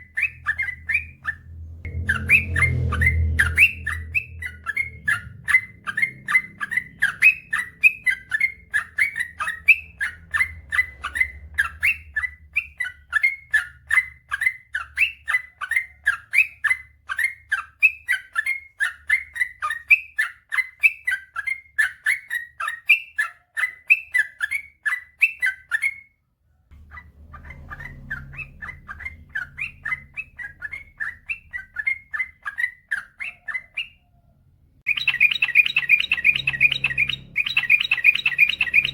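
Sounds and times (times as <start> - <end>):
bird singing bubbly chirps: 0.0 - 13.7, 34.9 - 38.9.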